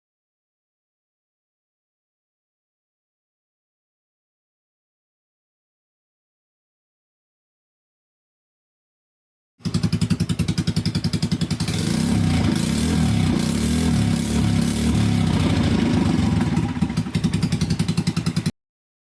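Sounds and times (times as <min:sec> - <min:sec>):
scooter engine idling and revving: 0:09.6 - 0:18.6.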